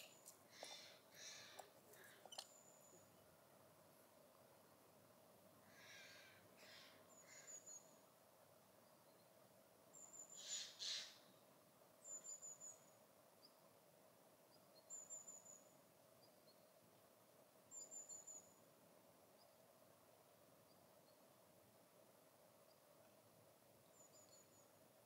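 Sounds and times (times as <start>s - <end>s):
small bird calling: 0.0s - 3.1s, 5.6s - 8.0s, 10.0s - 11.4s
faint steady hum: 0.0s - 25.0s.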